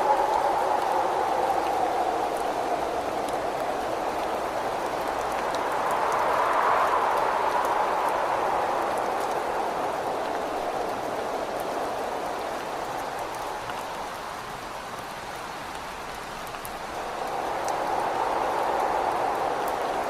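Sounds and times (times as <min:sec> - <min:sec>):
rain beating on a window: 0:00.0 - 0:20.0
wind: 0:00.0 - 0:20.0.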